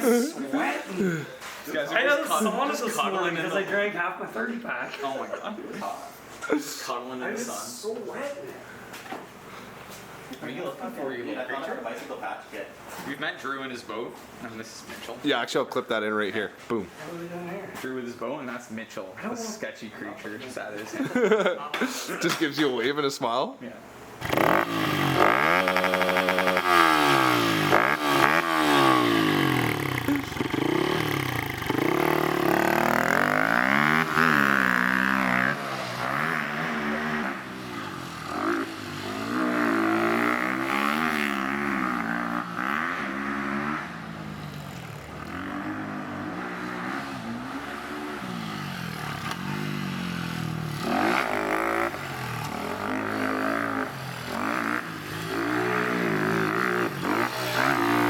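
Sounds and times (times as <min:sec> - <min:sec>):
dirt bike engine revving: 0:24.2 - 0:58.0.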